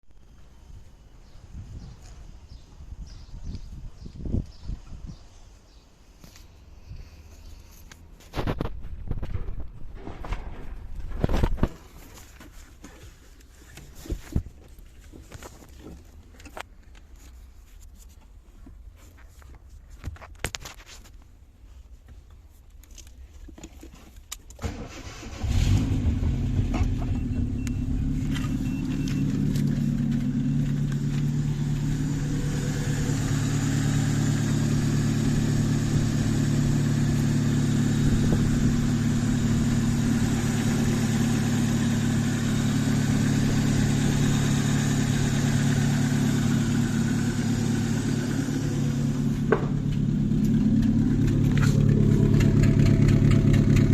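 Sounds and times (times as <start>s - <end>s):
car engine cranking and idling: 22.1s - 53.9s.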